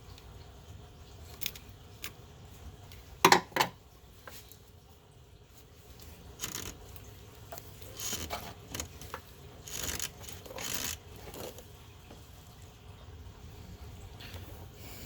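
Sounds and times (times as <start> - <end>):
tool scraping hose: 6.4 - 6.8, 7.8 - 11.6.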